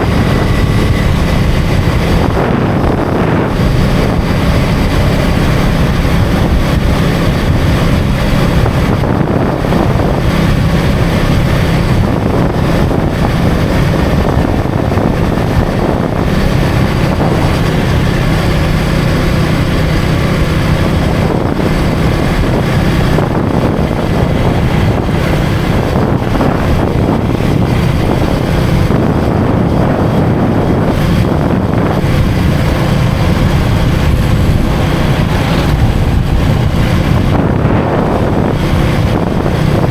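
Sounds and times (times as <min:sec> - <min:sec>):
motorcycle engine cruising: 0:00.0 - 0:39.9
wind buffeting microphone: 0:00.0 - 0:39.9.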